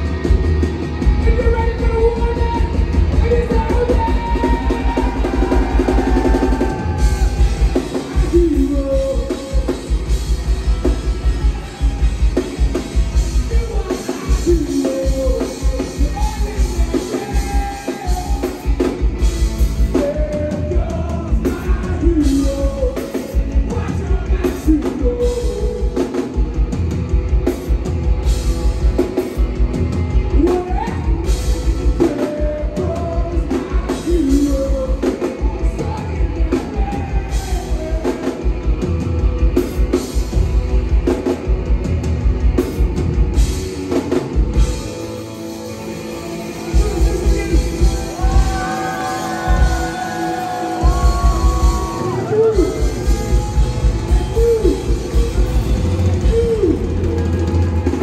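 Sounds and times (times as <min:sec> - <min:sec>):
live rock band playing: 0:00.0 - 0:58.0
person singing: 0:01.1 - 0:10.1, 0:13.3 - 0:18.9, 0:19.8 - 0:26.4, 0:30.3 - 0:38.6, 0:46.4 - 0:58.0.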